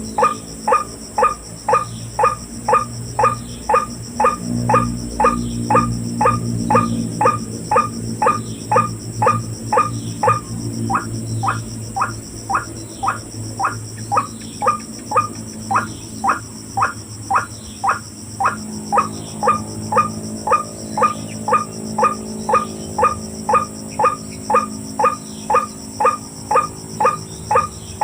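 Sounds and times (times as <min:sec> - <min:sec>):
bird harsh repeated call: 0:00.0 - 0:28.0.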